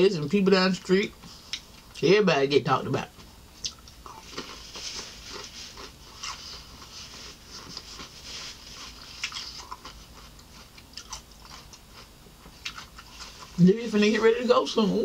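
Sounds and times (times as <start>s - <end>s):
person crunching cucumber: 3.6s - 13.6s.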